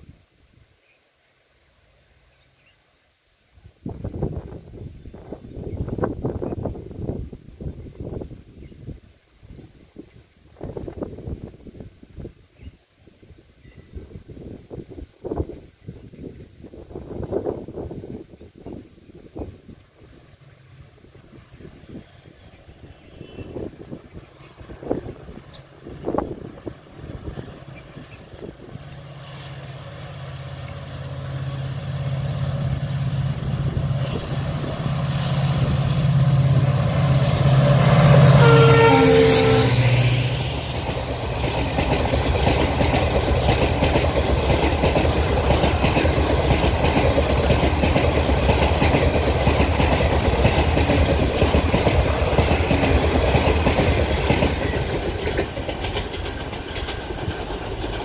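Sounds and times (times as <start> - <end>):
diesel locomotive engine drone: 16.6 - 58.0
train wheels clattering on track: 22.0 - 58.0.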